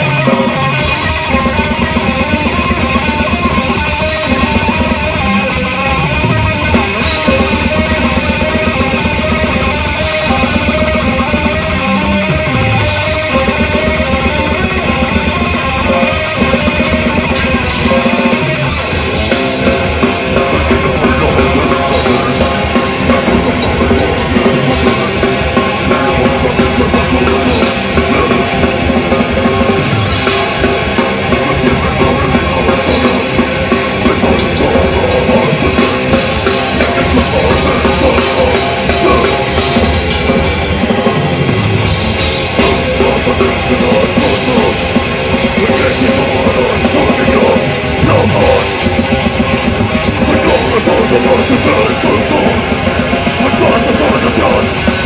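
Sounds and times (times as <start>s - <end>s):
metal band playing live: 0.0s - 55.0s
pounding drum kit: 0.0s - 55.0s.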